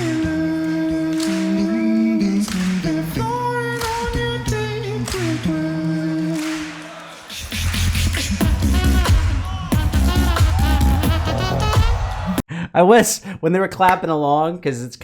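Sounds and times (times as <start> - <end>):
hummed vocal notes in harmony: 0.0 - 12.3
beatbox snare hits: 6.4 - 12.3.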